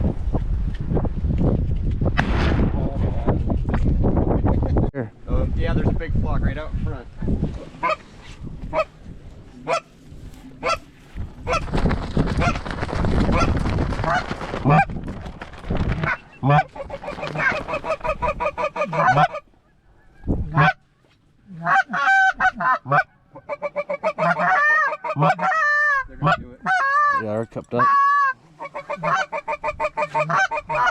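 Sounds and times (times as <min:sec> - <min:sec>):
rushing wind noise: 0:00.0 - 0:09.4, 0:10.1 - 0:18.7
geese honking and clucking: 0:07.7 - 0:11.8, 0:13.3 - 0:14.9, 0:15.9 - 0:30.9.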